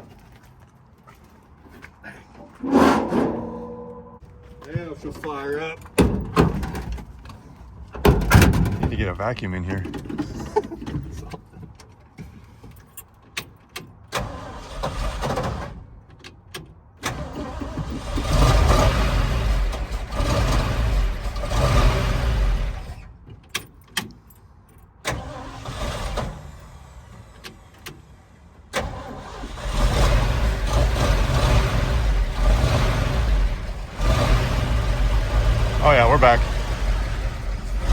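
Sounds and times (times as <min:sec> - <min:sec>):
truck engine running: 0:29.2 - 0:37.9.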